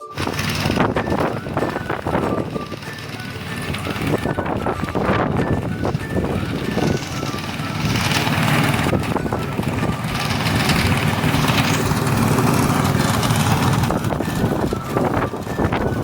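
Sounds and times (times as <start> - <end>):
rushing noise: 0.0 - 16.0
threshing machine engine hum: 0.0 - 16.0.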